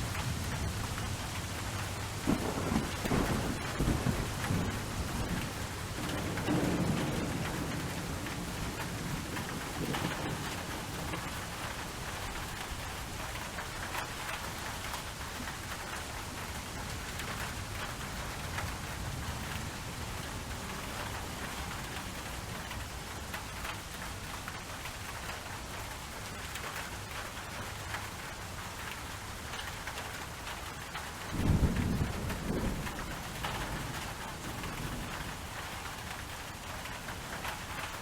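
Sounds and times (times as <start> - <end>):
rain hissing: 0.0 - 25.1
raindrops ticking: 0.0 - 38.0.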